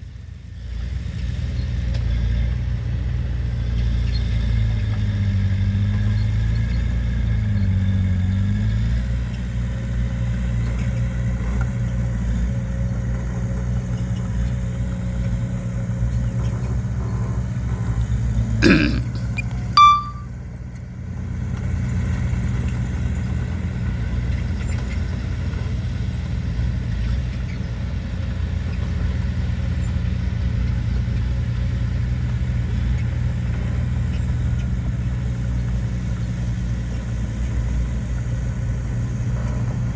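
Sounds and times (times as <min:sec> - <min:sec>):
heavy machinery engine drone: 0:00.1 - 0:20.3.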